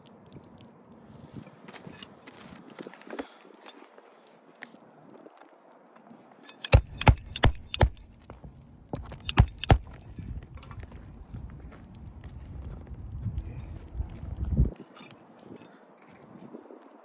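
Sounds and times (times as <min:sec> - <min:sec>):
metallic clinks and knocks: 0:06.4 - 0:11.0.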